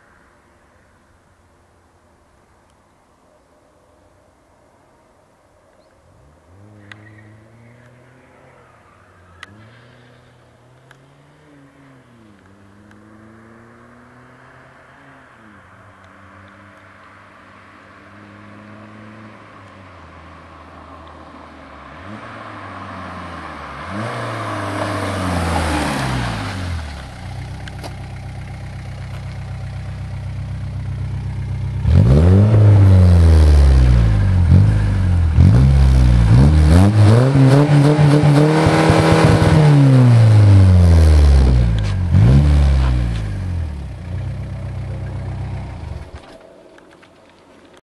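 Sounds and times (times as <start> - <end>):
diesel engine revving: 23.8 - 46.2.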